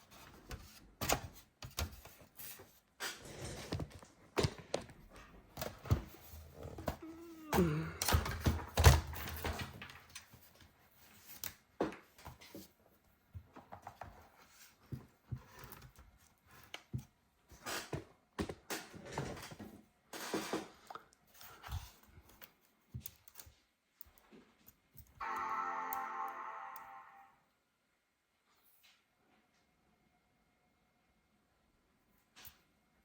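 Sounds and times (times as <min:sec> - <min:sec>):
brief falling tone: 0:25.2 - 0:27.4.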